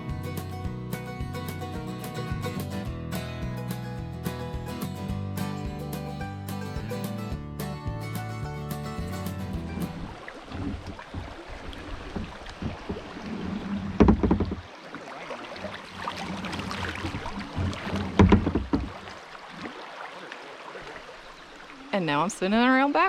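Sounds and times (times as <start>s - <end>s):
kayak paddle splashing water: 9.6s - 21.9s.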